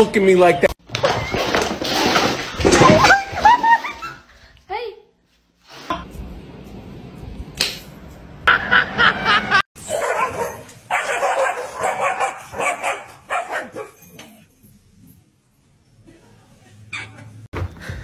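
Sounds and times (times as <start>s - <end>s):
dogs barking and yipping: 9.8s - 14.4s.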